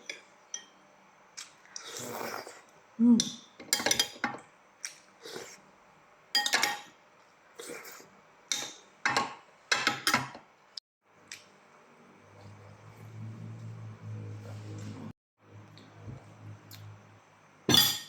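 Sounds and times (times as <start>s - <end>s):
low steady hum: 11.1s - 18.0s.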